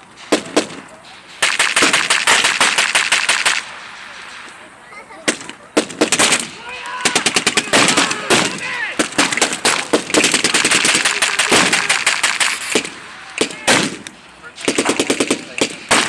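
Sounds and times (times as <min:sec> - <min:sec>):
machine-gun bursts: 0:00.2 - 0:04.6, 0:05.3 - 0:16.0
single rifle shots: 0:00.2 - 0:16.0.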